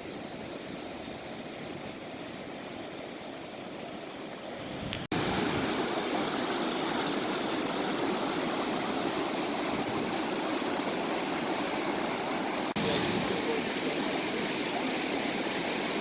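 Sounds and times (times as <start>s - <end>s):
waterfall rushing: 5.1s - 16.0s.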